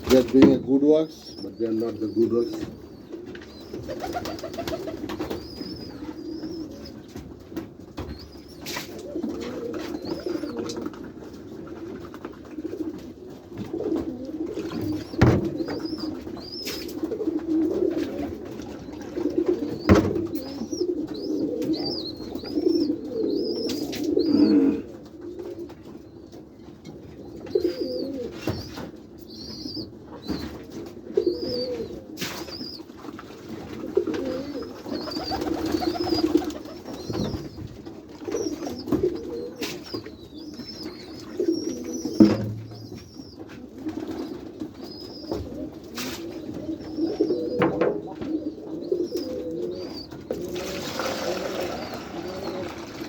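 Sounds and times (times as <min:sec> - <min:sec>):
pigeons cooing: 0:00.0 - 0:53.0
sharp knocks: 0:42.2 - 0:43.1.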